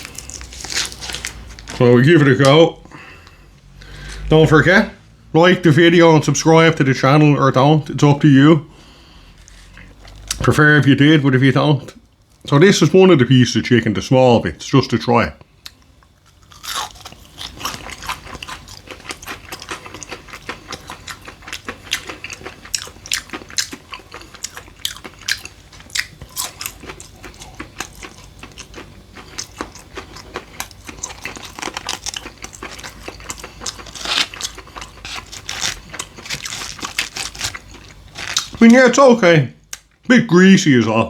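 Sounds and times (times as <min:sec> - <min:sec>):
person chewing crunchy chicken: 0:00.0 - 0:01.8, 0:08.8 - 0:10.4, 0:15.6 - 0:38.8.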